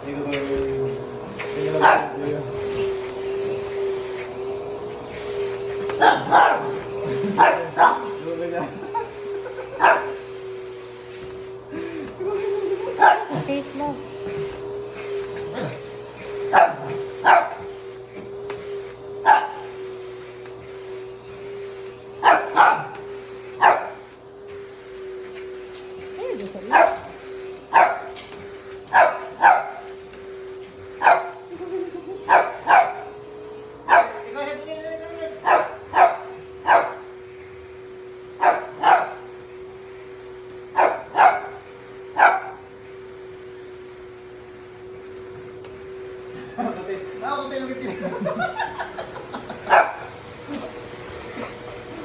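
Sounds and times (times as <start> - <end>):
vacuum cleaner motor hum: 0.0 - 52.0
small dog barking: 1.8 - 2.3, 6.0 - 8.2, 9.7 - 10.2, 12.9 - 13.4, 16.5 - 17.7, 19.2 - 19.7, 22.2 - 23.0, 23.6 - 24.0, 26.6 - 28.2, 28.9 - 29.9, 31.0 - 31.5, 32.2 - 33.2, 33.8 - 34.3, 35.4 - 37.1, 38.4 - 39.3, 40.7 - 42.7, 49.7 - 50.2.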